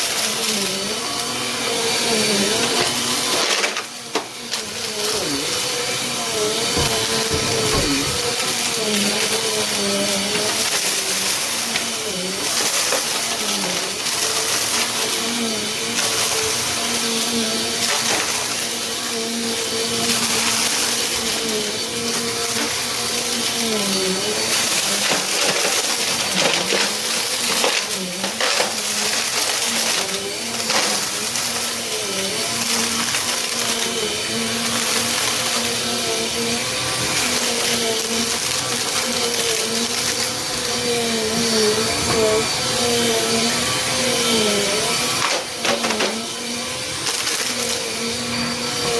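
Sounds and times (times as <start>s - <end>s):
vacuum cleaner motor whine: 0.0s - 48.9s
debris crunching in vacuum: 4.6s - 9.4s.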